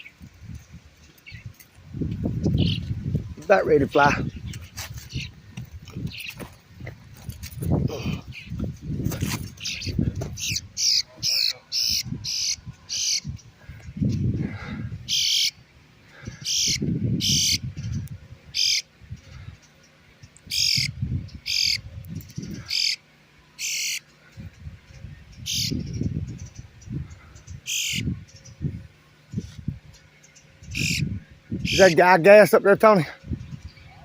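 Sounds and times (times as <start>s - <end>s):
bird short sharp calls: 9.6s - 13.2s, 16.3s - 18.9s, 20.5s - 21.8s, 22.4s - 23.0s, 23.6s - 24.1s, 27.4s - 28.1s.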